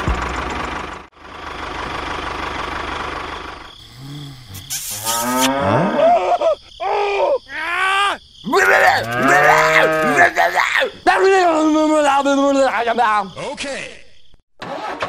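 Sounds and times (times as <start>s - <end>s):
cow mooing: 3.9s - 6.1s, 8.7s - 10.4s
toy tractor motor running: 4.5s - 5.5s.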